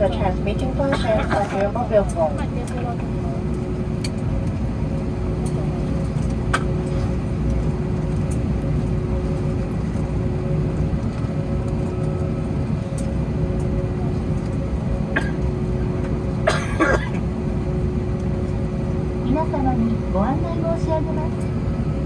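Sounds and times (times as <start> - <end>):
airplane cabin rumble: 0.0 - 22.0
person coughing: 0.9 - 1.6, 15.1 - 15.5, 16.4 - 17.2.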